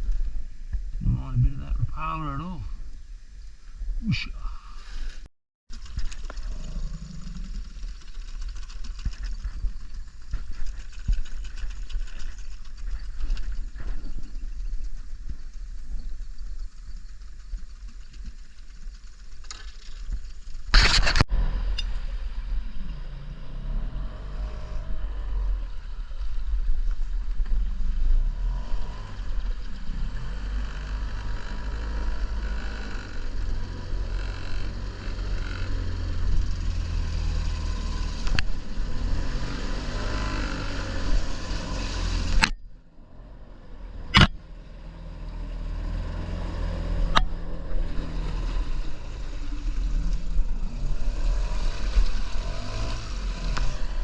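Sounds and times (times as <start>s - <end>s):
motor rumbling: 5.1s - 54.0s.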